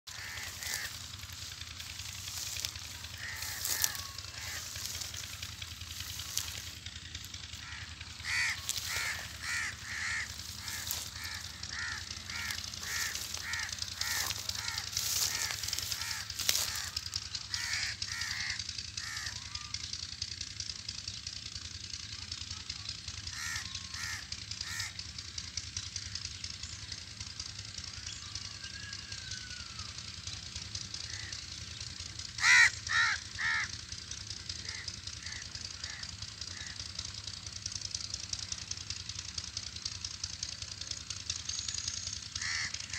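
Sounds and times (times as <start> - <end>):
bird calling: 0.1 - 19.9, 31.0 - 33.8.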